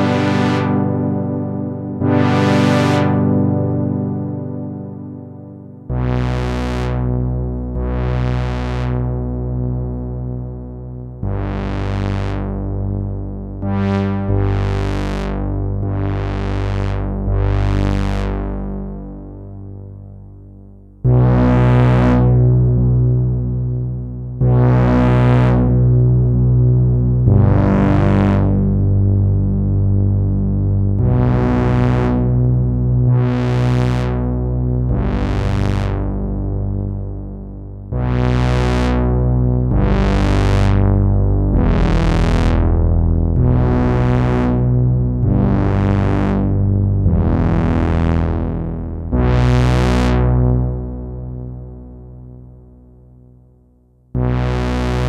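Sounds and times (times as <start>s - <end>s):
synthesizer chords: 0.0s - 55.0s
low bass note: 19.4s - 55.0s.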